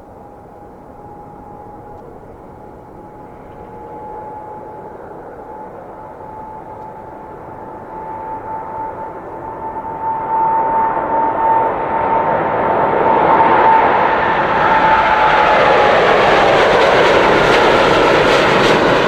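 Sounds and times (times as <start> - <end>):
jet engines at takeoff power: 0.0 - 19.0.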